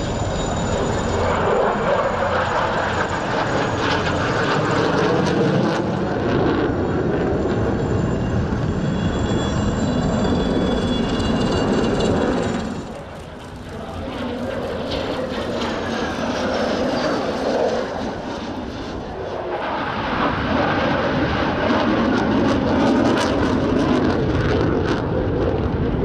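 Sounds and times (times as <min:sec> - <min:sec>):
military aircraft engine roar: 0:00.0 - 0:26.0.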